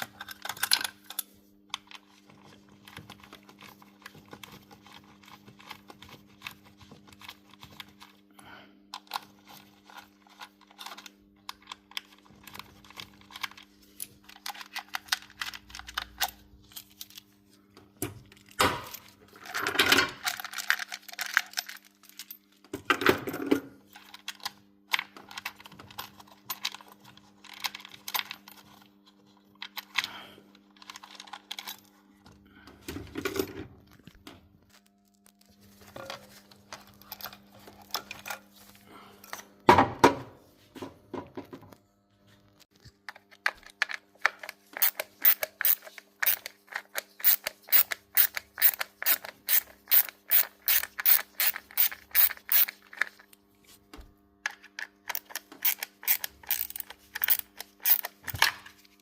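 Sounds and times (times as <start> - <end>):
mechanical clicking and rubbing: 43.8 - 53.3, 55.0 - 58.4.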